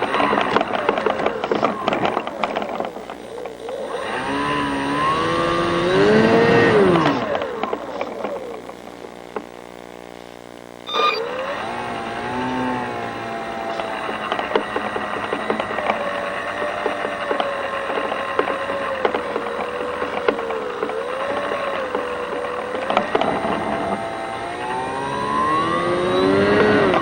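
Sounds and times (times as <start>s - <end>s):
model airplane motor and propeller: 0.0s - 8.8s, 11.1s - 27.0s
short irregular clicks: 12.4s - 24.4s.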